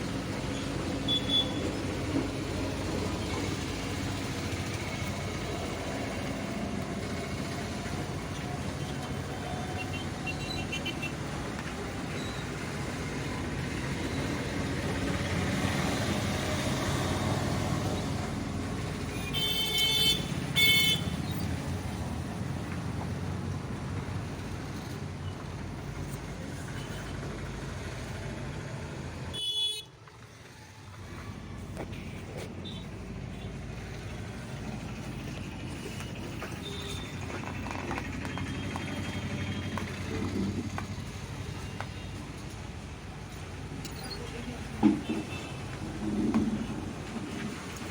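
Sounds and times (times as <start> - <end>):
traffic noise: 0.0 - 47.9
vehicle horns tooting: 1.0 - 1.6, 19.2 - 21.2, 29.3 - 29.9.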